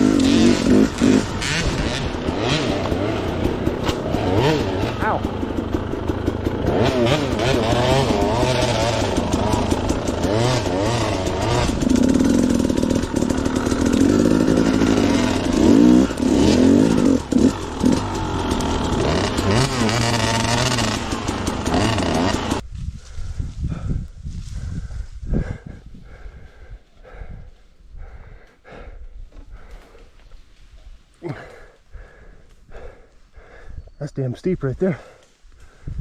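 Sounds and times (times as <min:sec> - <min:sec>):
dirt bike engine revving: 0:00.0 - 0:22.6.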